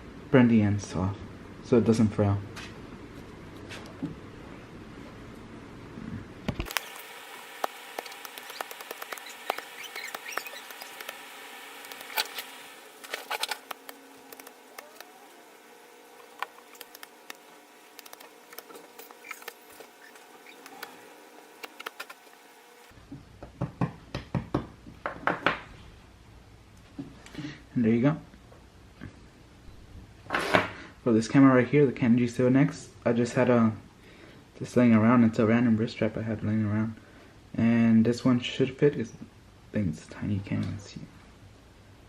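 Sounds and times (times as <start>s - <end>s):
faint steady whine: 0.0s - 23.5s
scratchy rustles: 8.0s - 11.2s.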